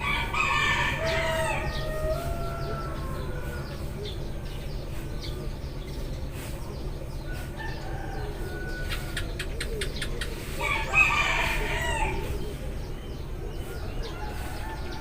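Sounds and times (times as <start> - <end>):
rooster crowing: 0.0 - 4.0, 7.3 - 9.3, 10.6 - 12.3, 13.7 - 15.0
low background rumble: 0.0 - 15.0
sparrows chirping: 0.0 - 15.0.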